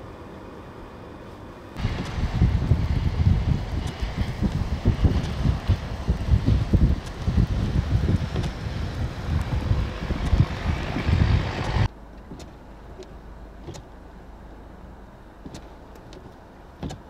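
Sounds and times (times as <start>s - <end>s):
low steady hum: 0.0s - 17.0s
blizzard wind buffeting microphone: 0.1s - 11.9s.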